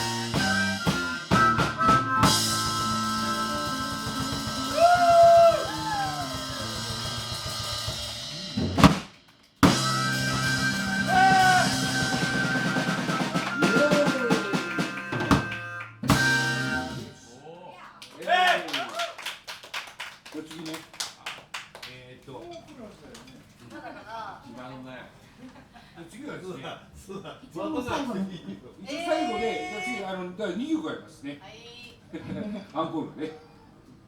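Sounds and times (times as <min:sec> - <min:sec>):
live blues band playing: 0:00.0 - 0:09.0, 0:09.6 - 0:17.2.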